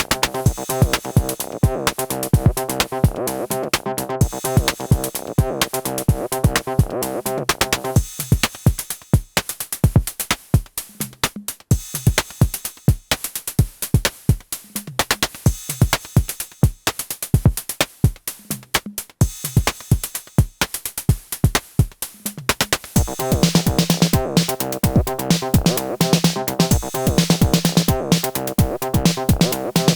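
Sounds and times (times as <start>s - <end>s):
techno drum machine beat: 0.0s - 29.9s.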